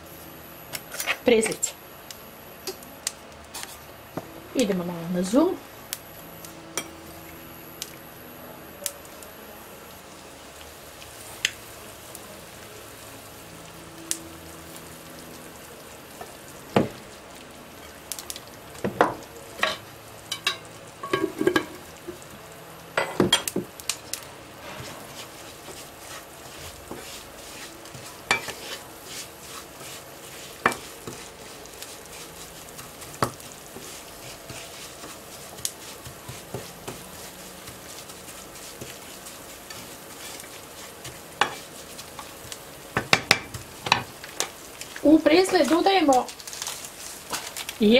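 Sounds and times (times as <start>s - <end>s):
breadcrumbs sizzling in a pan: 0.0s - 47.9s
utensil scraping a pan: 24.6s - 42.3s.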